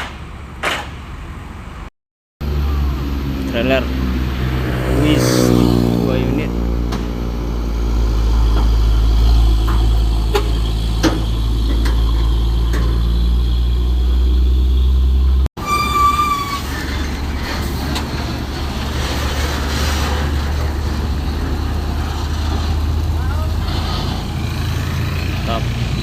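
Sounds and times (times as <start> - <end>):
vehicle engines on road: 0.0 - 26.0
car horn: 10.3 - 10.7.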